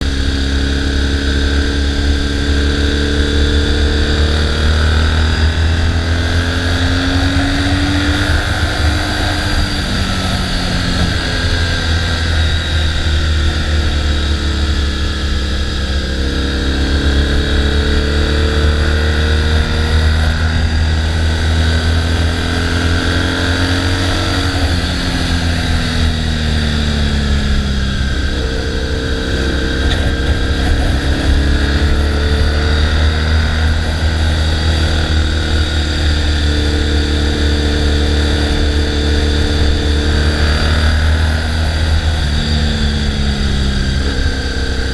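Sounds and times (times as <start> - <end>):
motorcycle engine rumbling: 0.0 - 44.9.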